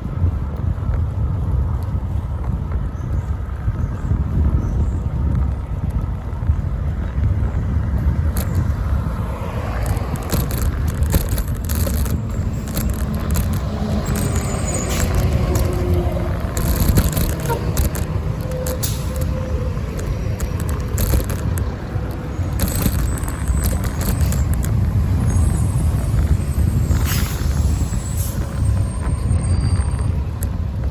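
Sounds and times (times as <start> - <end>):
bicycle clicks and rattles: 0.0 - 30.9
passing street traffic: 0.0 - 30.9
road rumble: 0.0 - 30.9
wind on microphone: 0.0 - 30.9.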